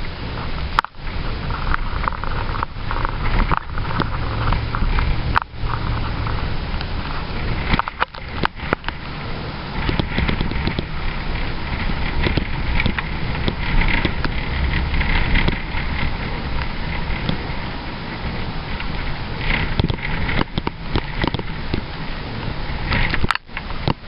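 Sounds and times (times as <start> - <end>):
truck road and engine noise: 0.0 - 24.0.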